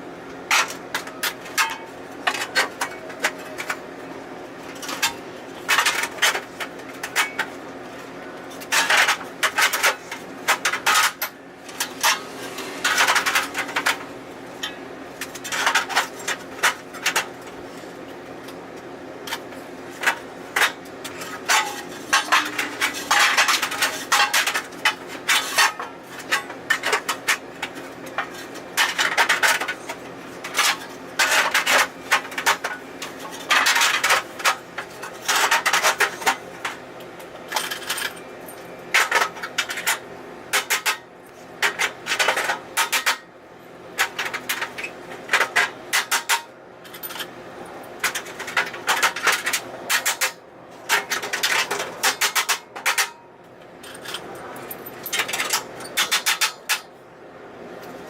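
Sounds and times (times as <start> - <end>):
metal shutter panels clanking: 20.0 - 36.8.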